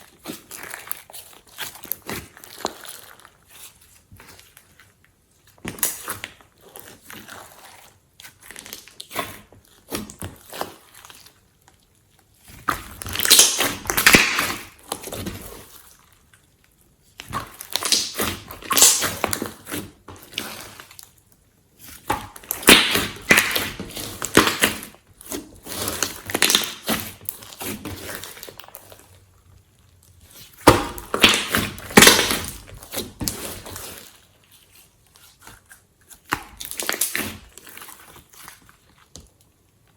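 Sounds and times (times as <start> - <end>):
slime squishing with clicks and pops: 12.6 - 15.4, 17.2 - 19.6, 22.0 - 24.9, 26.0 - 27.6, 30.7 - 32.9, 36.1 - 37.5.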